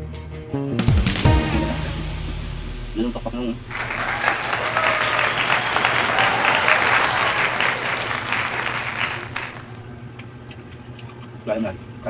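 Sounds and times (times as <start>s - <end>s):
crowd applause: 3.7s - 9.8s.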